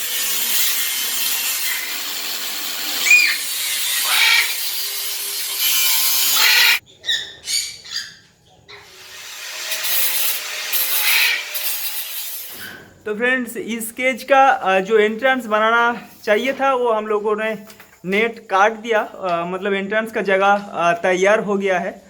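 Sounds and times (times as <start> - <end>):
wire netting being cut: 0.0 - 6.8, 8.8 - 12.8
parrot squawks: 3.0 - 4.6, 6.3 - 8.8, 10.9 - 11.4.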